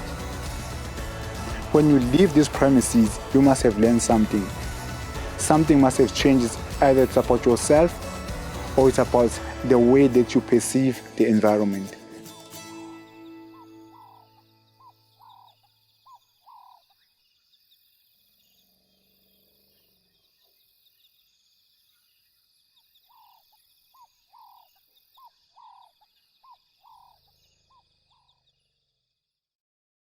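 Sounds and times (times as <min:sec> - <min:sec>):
high trilling animal chorus: 0:00.0 - 0:11.9, 0:13.4 - 0:16.9.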